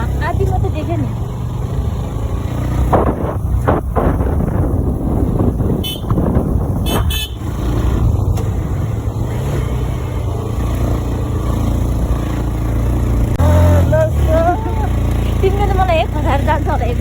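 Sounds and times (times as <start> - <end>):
motorcycle engine running: 0.0 - 17.0
road and wind noise: 0.0 - 17.0
horn toots: 5.8 - 7.6, 13.4 - 14.4.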